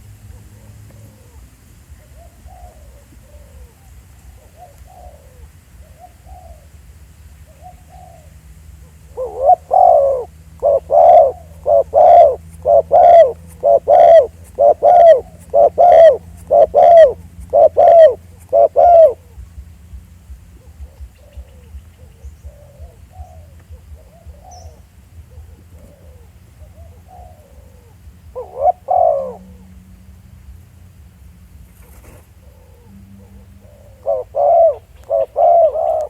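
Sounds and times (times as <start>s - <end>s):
dove cooing: 0.0s - 36.0s.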